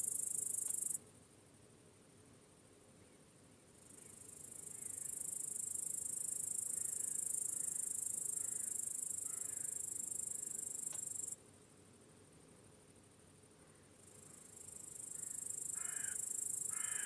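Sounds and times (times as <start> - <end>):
crickets trilling: 3.8 - 11.4, 13.8 - 17.0.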